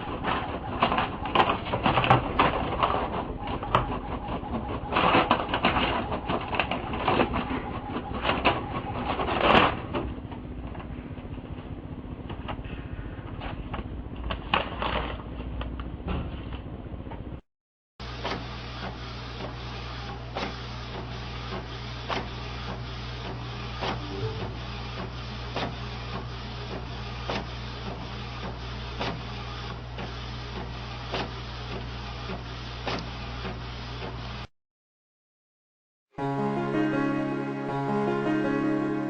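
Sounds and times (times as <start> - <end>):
printer whirring: 0.0 - 11.8, 18.0 - 34.4
sharp printer clicks: 0.1 - 10.0.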